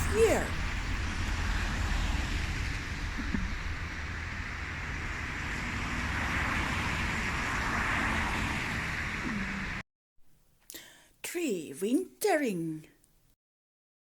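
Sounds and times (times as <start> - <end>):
road traffic noise: 0.0 - 9.8.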